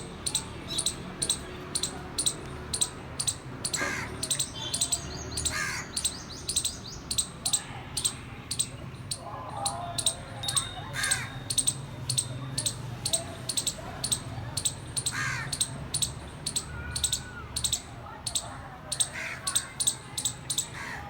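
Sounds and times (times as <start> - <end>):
squirrel chirping: 0.0 - 21.0.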